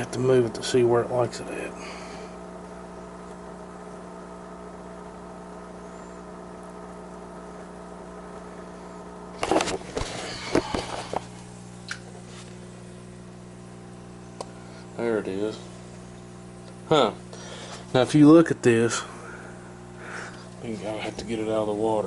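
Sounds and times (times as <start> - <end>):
mechanical hum: 0.0 - 22.0.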